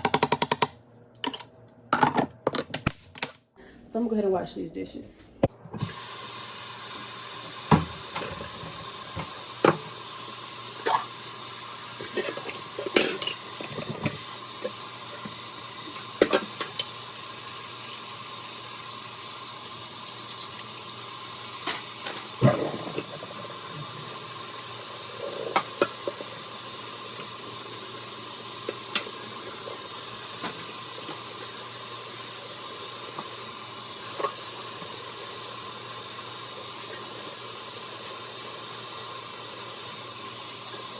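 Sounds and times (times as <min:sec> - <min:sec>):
tap water running: 0:05.8 - 0:40.9
dishes clinking and clattering: 0:12.0 - 0:14.2.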